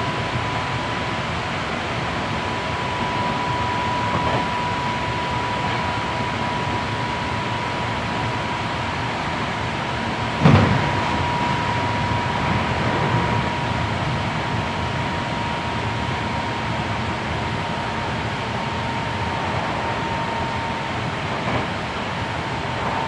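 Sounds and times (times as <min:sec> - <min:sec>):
thin steady whine: 0:00.0 - 0:23.0
train wheels rumbling on rail: 0:00.0 - 0:23.0
sharp thump: 0:10.4 - 0:10.9.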